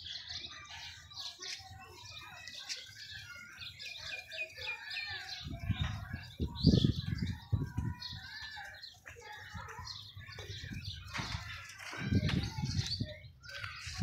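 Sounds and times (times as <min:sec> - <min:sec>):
birds chirping and calling: 0:00.0 - 0:14.0.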